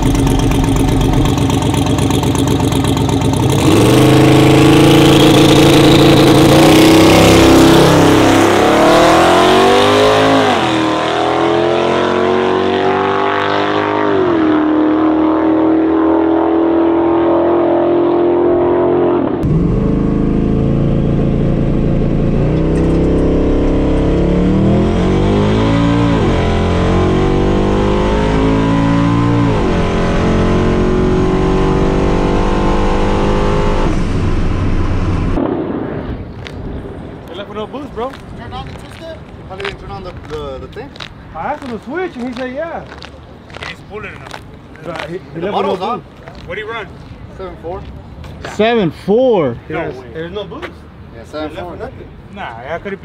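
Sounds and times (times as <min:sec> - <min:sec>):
truck engine revving through gears: 0:00.0 - 0:35.4.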